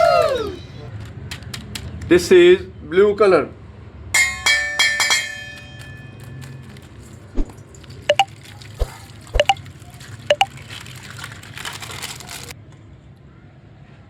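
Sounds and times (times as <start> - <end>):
wet squishing rustle of plastic bag: 6.6 - 12.6
water dripping and plopping: 6.7 - 12.1.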